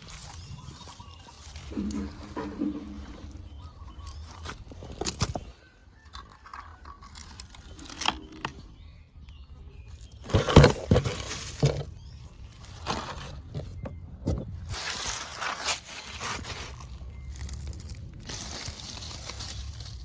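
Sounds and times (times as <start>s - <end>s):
crunching and knocking: 1.5s - 8.6s, 10.0s - 15.2s.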